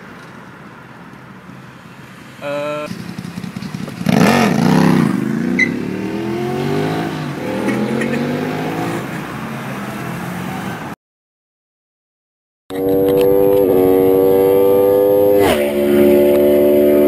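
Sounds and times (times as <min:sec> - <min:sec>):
sport bike engine accelerating: 0:02.9 - 0:09.0, 0:12.7 - 0:17.0.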